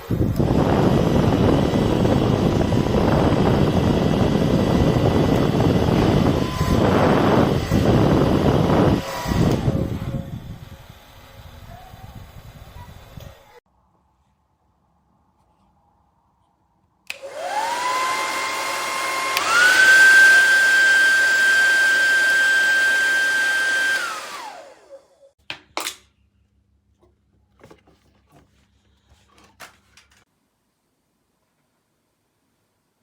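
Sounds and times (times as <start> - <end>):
hair dryer running: 0.0 - 13.4, 17.1 - 25.4.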